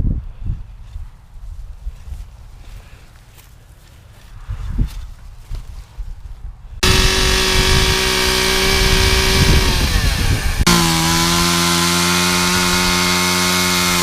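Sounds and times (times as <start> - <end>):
chainsaw cutting tree trunk: 6.8 - 14.0.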